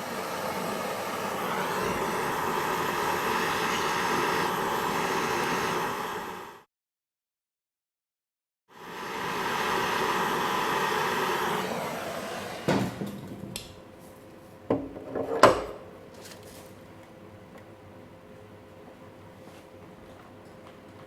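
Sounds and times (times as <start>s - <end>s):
rushing hiss: 0.0s - 6.6s.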